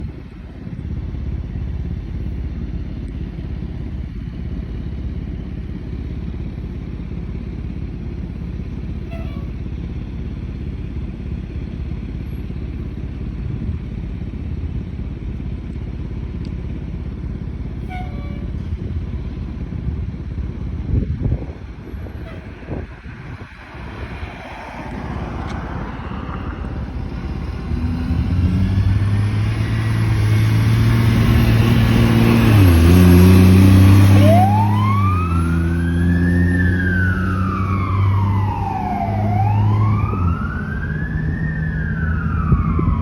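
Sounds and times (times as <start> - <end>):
diesel engine rumbling: 0.0 - 43.0
faint brief tones: 9.1 - 9.5.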